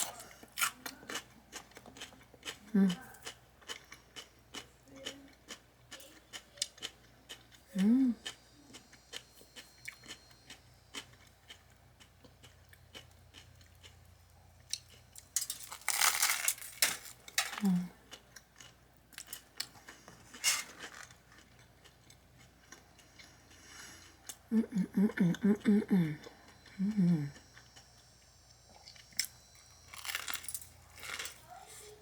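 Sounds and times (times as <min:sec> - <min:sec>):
crunching bites into sandwich: 0:15.6 - 0:17.2, 0:29.9 - 0:31.4.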